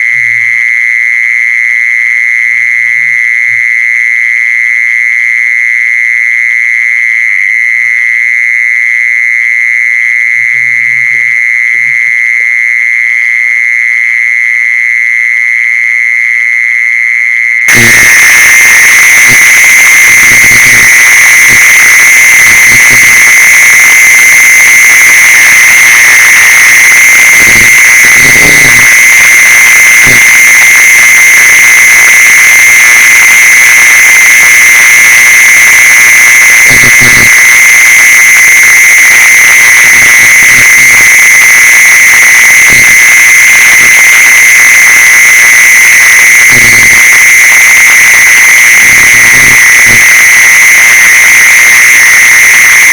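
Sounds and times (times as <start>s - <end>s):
shrill insect song: 16.2s - 52.9s.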